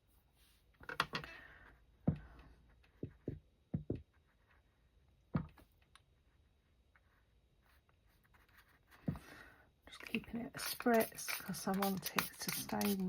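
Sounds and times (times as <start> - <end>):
light knocks and taps: 2.9 - 4.1.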